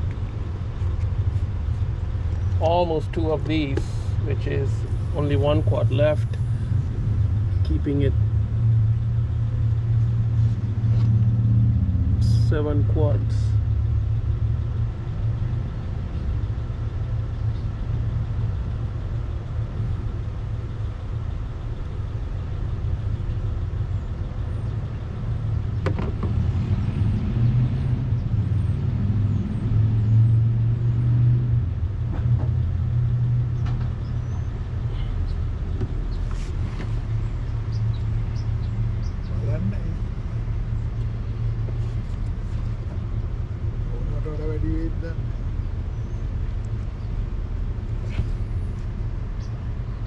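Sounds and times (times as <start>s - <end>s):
vehicle engine rumbling: 0.0s - 50.0s.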